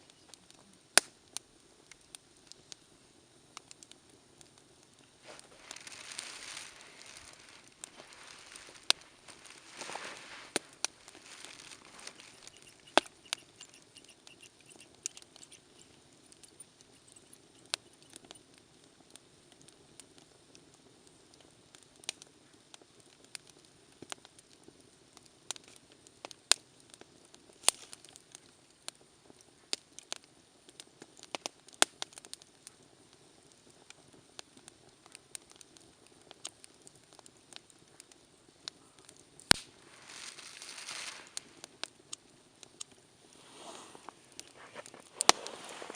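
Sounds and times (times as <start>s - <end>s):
campfire crackling: 0.0s - 45.9s
fire pops and snaps: 0.2s - 45.9s
hiss of flame: 4.5s - 18.4s, 39.4s - 45.9s
rush of flame: 5.1s - 13.8s, 39.5s - 41.9s, 43.2s - 45.9s.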